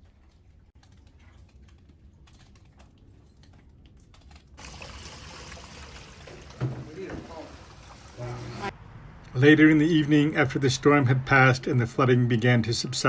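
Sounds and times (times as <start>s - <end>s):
water dripping: 0.0s - 8.7s
water rushing: 4.6s - 8.7s.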